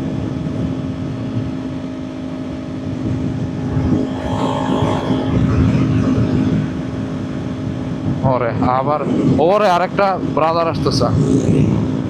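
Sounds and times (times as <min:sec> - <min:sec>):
wind rushing on microphone: 0:03.2 - 0:08.2.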